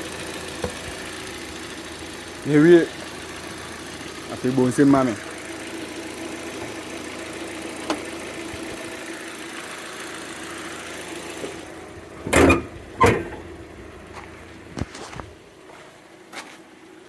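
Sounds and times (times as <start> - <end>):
car engine idling: 0.0 - 17.0
loud thumps: 12.2 - 14.0.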